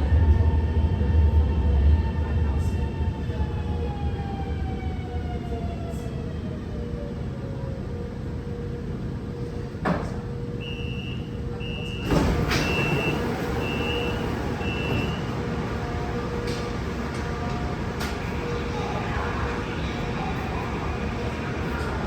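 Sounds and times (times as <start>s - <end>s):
electric train hum: 0.0s - 22.0s
high warning beeps: 10.7s - 15.4s
sliding doors thud: 12.0s - 15.3s.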